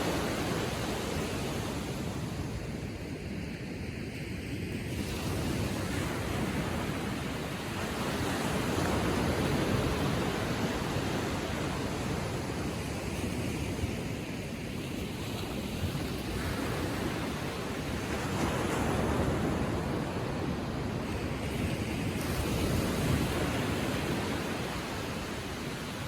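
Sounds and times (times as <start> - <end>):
waves lapping on shore: 0.0 - 26.0.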